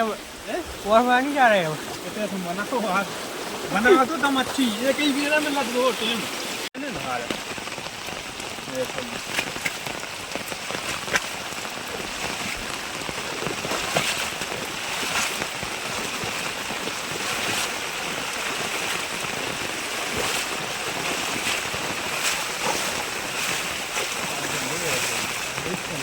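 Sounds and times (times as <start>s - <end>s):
steady rain hiss: 0.0s - 26.0s
raindrop ticks: 6.8s - 26.0s.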